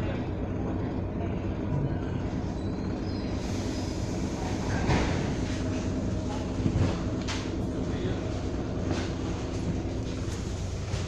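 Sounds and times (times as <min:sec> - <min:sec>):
train wheels on rails from inside: 0:01.6 - 0:11.0.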